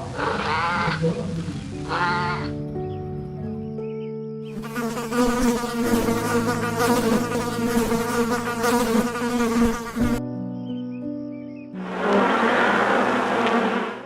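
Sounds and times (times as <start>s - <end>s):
background music tones: 0.6s - 14.0s
insect wings buzzing: 4.5s - 10.2s.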